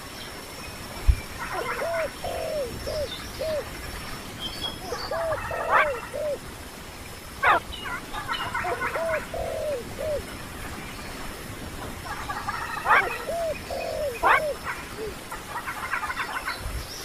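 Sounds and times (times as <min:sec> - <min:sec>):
busy bird chatter: 0:01.3 - 0:03.7, 0:04.4 - 0:06.4, 0:07.4 - 0:17.0
bird calls: 0:01.3 - 0:03.8, 0:04.4 - 0:06.4, 0:07.4 - 0:10.3, 0:12.0 - 0:16.6.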